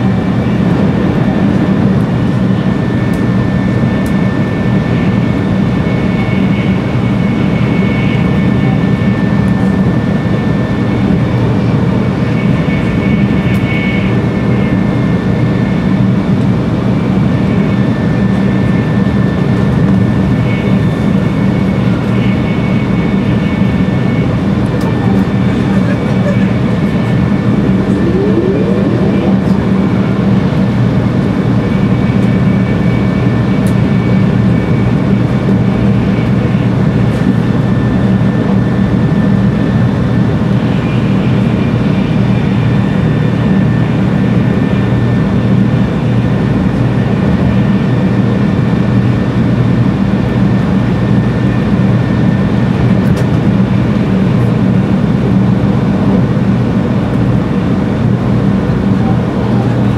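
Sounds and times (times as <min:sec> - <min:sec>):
low hum: 0:25.9 - 0:31.7
faint high whining tones: 0:26.3 - 0:31.8.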